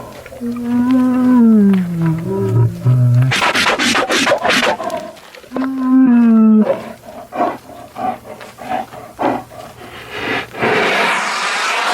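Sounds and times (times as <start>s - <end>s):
bear calling: 0.0s - 9.9s.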